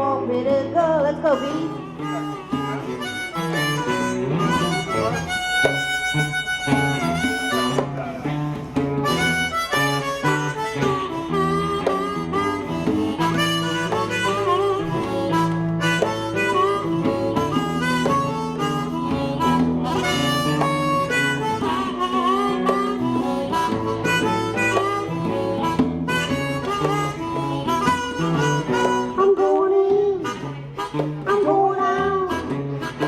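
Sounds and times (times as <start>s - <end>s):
electric guitar: 0.0s - 33.0s
harmonica solo with bent notes: 0.0s - 33.0s
steady shuffle beat: 1.3s - 33.0s.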